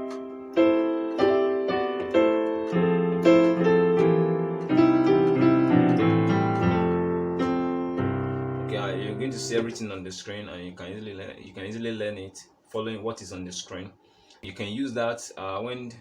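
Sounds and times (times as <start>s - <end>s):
keyboard bass notes: 0.0s - 9.8s
keyboard playing chords: 0.0s - 9.8s.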